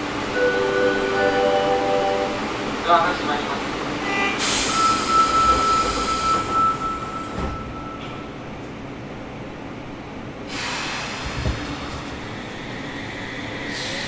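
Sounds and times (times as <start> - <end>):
air hiss: 10.5 - 14.0.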